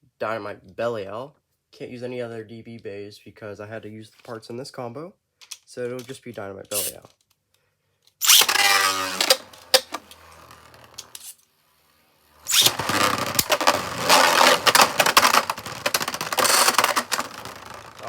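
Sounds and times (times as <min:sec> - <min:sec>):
spinning top launch whir: 0:08.2 - 0:11.3, 0:12.3 - 0:18.0
spinning tops colliding rattle: 0:12.5 - 0:18.0.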